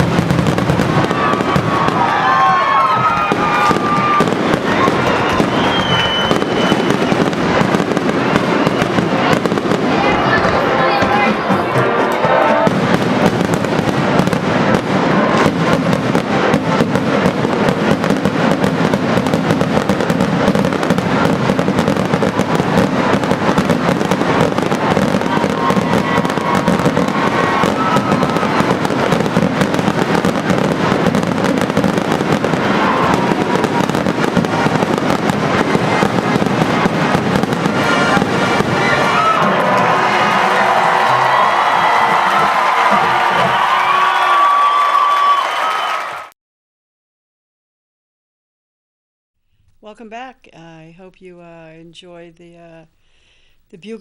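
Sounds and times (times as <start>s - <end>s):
fireworks bangs and crackles: 0.0s - 46.0s
music: 10.0s - 13.5s.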